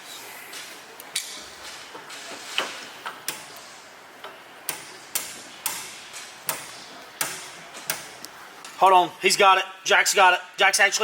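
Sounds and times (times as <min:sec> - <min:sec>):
wrench tapping metal: 0:04.2 - 0:08.2.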